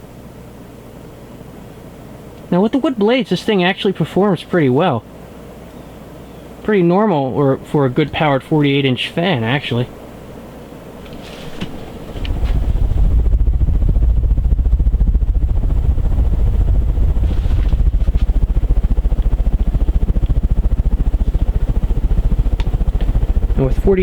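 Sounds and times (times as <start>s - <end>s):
ceiling fan throbbing: 0.0s - 24.0s
air buffeting microphone: 11.0s - 24.0s.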